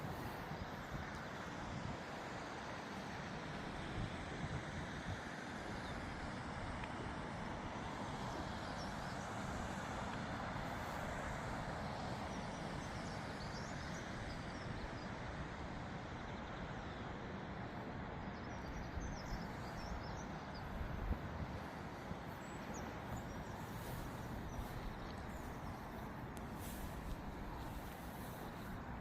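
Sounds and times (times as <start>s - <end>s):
steady low rumble and hiss: 0.0s - 29.0s
small birds chirping faintly: 7.8s - 29.0s.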